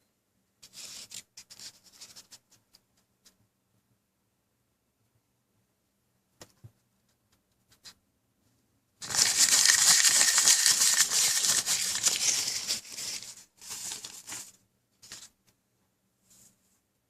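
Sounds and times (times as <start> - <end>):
crinkling crackling handling noise: 9.0 - 15.4.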